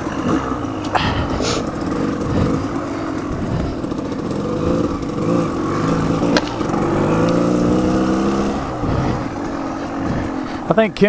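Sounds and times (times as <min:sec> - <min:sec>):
motorcycle engine revving: 0:00.0 - 0:11.0
wind and ground noise: 0:00.0 - 0:11.0.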